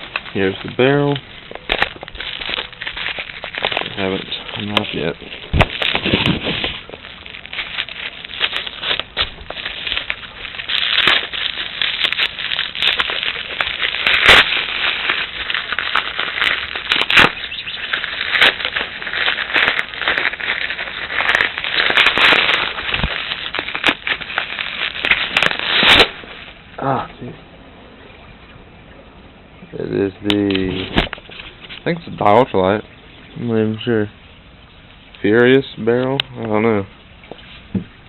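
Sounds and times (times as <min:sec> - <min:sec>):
plastic wrapping crinkling: 0:00.0 - 0:26.7.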